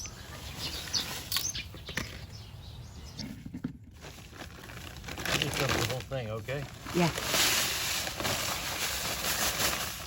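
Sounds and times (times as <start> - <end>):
small birds chirping: 0.0 - 3.6
light taps and scraping: 0.8 - 2.3.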